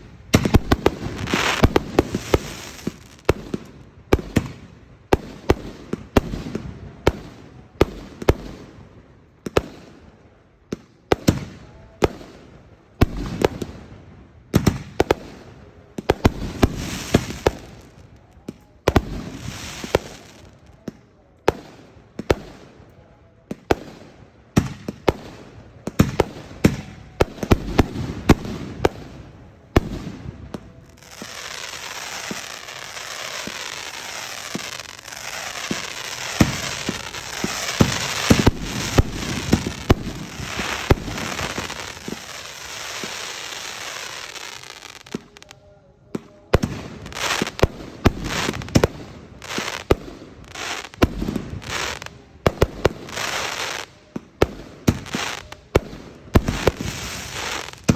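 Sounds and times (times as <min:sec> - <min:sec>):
fireworks banging: 0:00.0 - 0:08.5, 0:23.6 - 0:45.5
fireworks crackling: 0:00.0 - 0:57.9.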